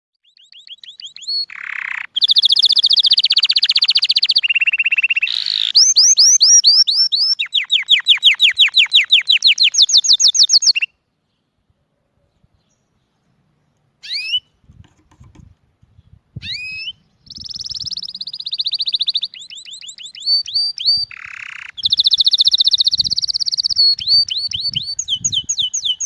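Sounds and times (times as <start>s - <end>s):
songbird trilling: 0.2s - 11.0s, 14.0s - 14.5s, 16.4s - 26.0s.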